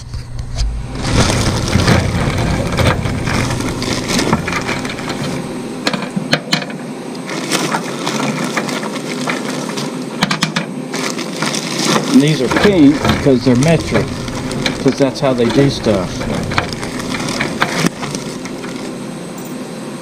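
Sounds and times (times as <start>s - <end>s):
low rumble: 0.0s - 5.8s, 12.4s - 19.0s
metal parts clicking and clanking: 1.0s - 6.8s, 11.4s - 19.5s.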